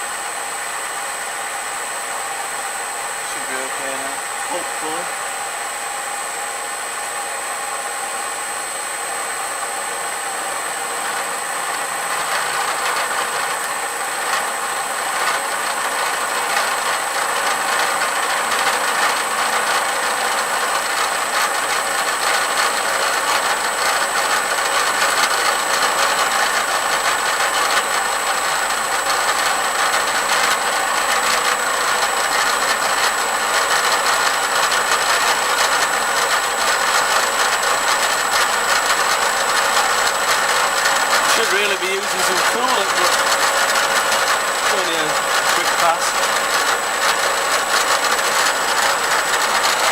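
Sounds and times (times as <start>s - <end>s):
milling machine running: 0.0s - 49.9s
fly cutter cutting steel: 24.4s - 49.9s.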